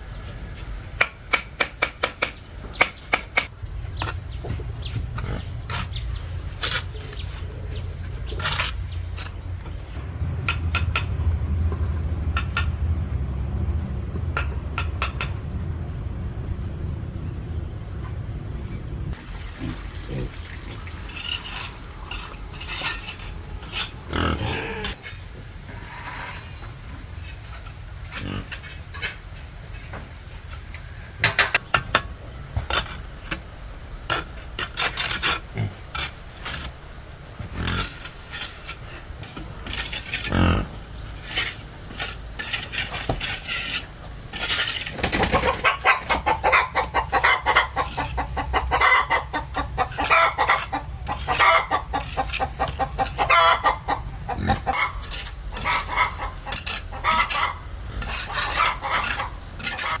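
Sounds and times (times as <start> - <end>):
sharp knocks and clicks: 10.4 - 12.8, 14.3 - 15.4
chickens clucking: 44.9 - 60.0.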